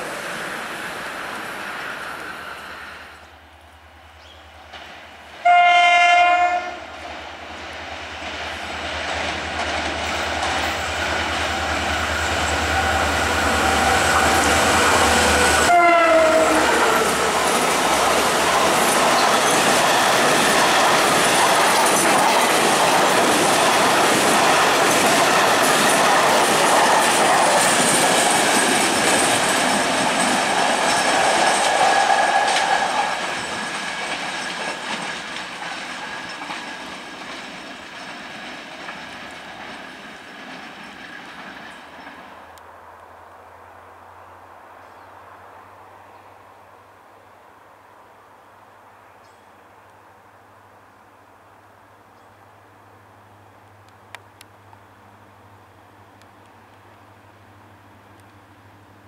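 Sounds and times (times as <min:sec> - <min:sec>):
freight train rumbling past: 0:00.0 - 0:44.7
locomotive horn blast: 0:05.4 - 0:06.9, 0:13.5 - 0:17.2
wheels clattering over rail joints: 0:08.2 - 0:15.5, 0:16.3 - 0:42.6.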